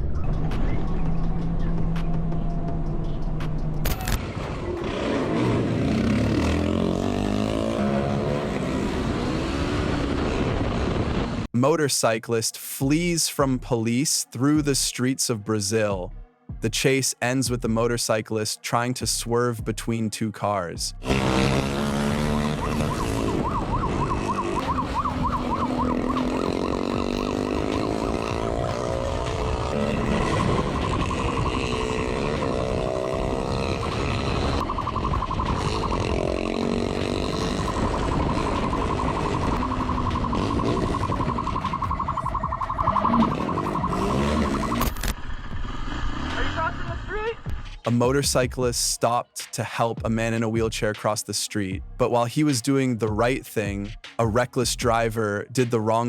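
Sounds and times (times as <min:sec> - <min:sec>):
motorcycle engine accelerating: 0:00.0 - 0:11.5, 0:21.0 - 0:47.6
police siren yelping: 0:21.1 - 0:45.1.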